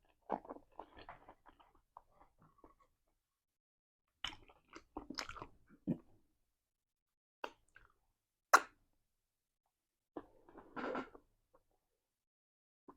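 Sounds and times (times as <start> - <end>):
chewing and mouth noises: 4.2 - 6.0.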